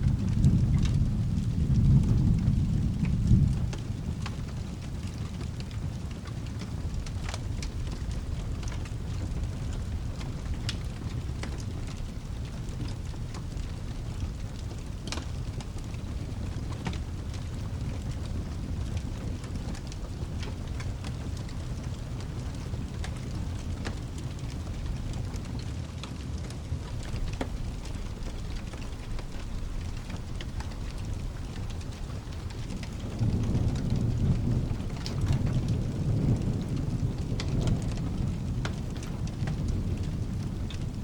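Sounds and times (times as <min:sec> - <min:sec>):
steady rain: 0:00.0 - 0:41.0
thunder rumbling: 0:00.0 - 0:41.0.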